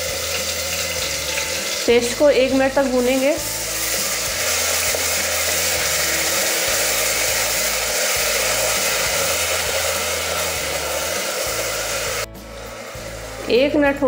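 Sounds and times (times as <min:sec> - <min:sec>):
paste sizzling in hot oil: 0:00.0 - 0:14.0.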